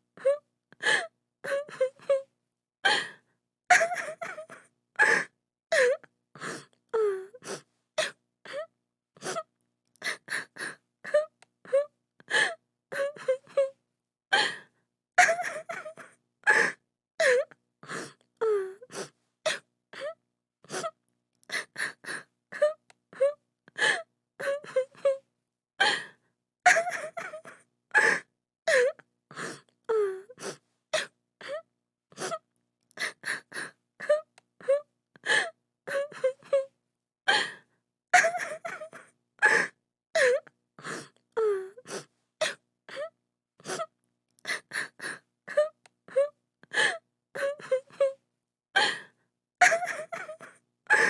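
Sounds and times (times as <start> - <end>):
woman sobbing: 3.7 - 6.0, 15.2 - 17.5, 26.7 - 29.0, 38.2 - 40.4, 44.6 - 48.2, 49.6 - 51.0.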